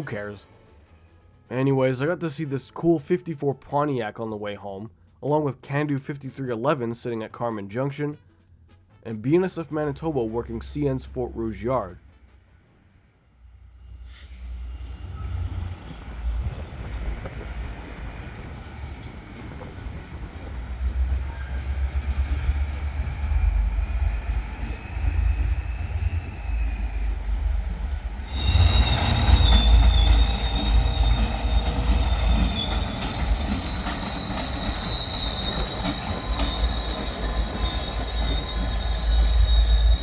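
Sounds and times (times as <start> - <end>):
low rolling rumble of railcars: 13.3 - 40.0
train wheels squealing on rails: 13.7 - 40.0.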